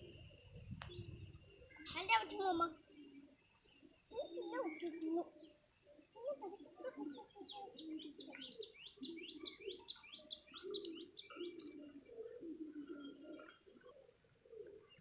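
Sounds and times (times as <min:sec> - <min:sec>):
birds chirping: 0:00.0 - 0:15.0
low cooing: 0:06.0 - 0:15.0.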